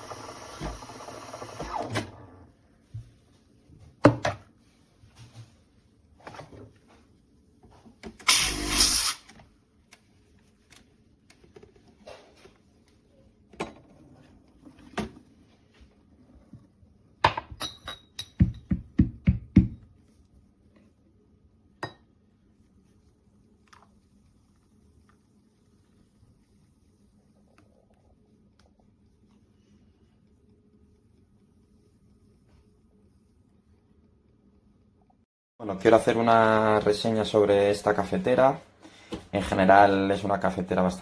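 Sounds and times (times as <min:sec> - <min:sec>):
espresso machine hiss: 0:00.0 - 0:01.8, 0:08.2 - 0:09.2.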